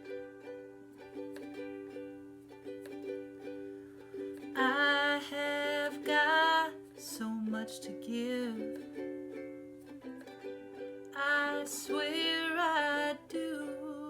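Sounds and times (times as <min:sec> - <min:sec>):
person singing: 0:00.0 - 0:14.0
ukulele playing: 0:00.0 - 0:14.0.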